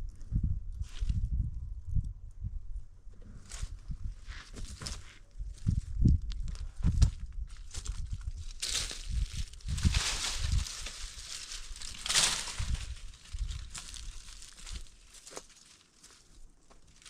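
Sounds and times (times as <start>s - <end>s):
dull low thumps: 0.0s - 14.9s
material rustling and crinkling: 7.6s - 17.0s.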